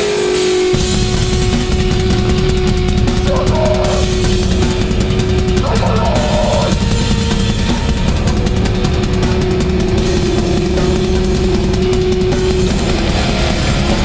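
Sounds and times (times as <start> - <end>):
distorted guitars and drums: 0.0 - 14.0
shouted vocals: 3.2 - 4.1, 5.6 - 6.7.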